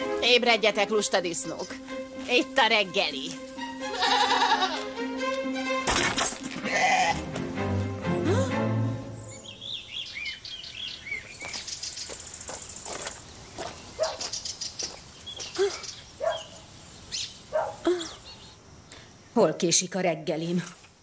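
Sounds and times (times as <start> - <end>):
songbirds chirping: 0.0 - 4.8, 6.7 - 20.9
high bird trill: 3.9 - 4.8, 9.1 - 12.2, 14.0 - 18.6.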